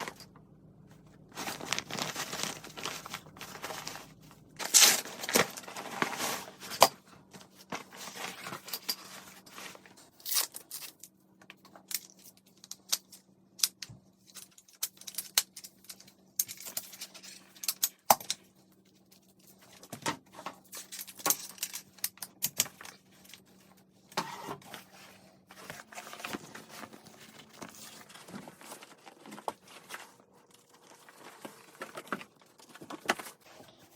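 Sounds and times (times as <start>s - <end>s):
faint steady hum: 0.0s - 33.9s
fabric rustling and crinkling: 1.1s - 10.1s, 24.6s - 33.9s.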